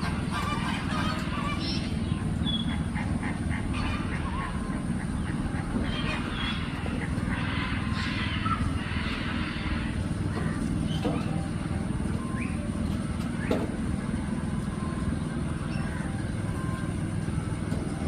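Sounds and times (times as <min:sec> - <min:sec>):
goose-like honks and quacks: 0:00.0 - 0:01.9, 0:02.5 - 0:10.6
steady low rumble: 0:00.0 - 0:18.0
bird chirps and whistles: 0:12.2 - 0:12.7.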